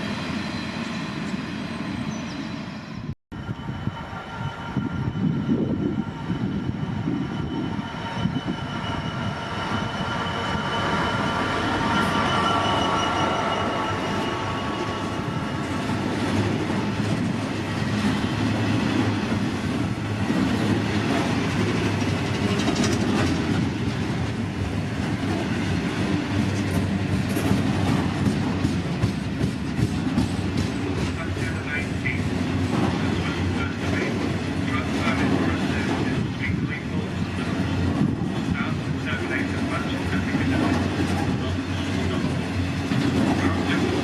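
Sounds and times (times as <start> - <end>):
train wheels on rails: 0.0 - 44.0
high ringing tones: 3.3 - 16.0.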